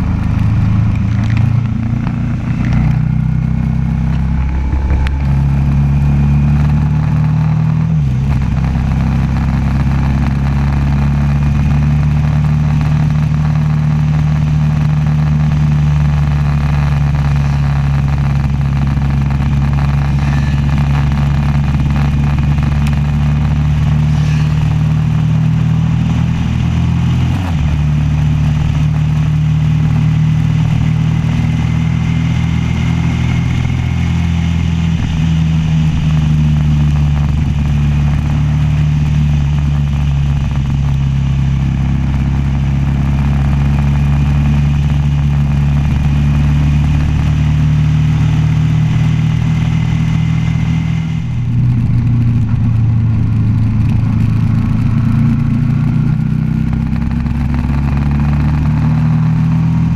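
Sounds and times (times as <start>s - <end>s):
rushing wind noise: 0.0s - 9.0s
motorcycle engine running: 0.0s - 59.9s.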